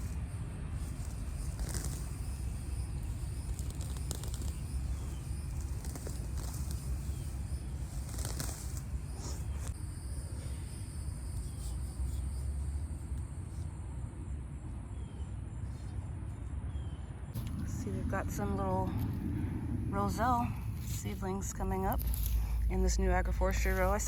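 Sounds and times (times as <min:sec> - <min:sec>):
wind buffeting microphone: 0:17.4 - 0:24.0.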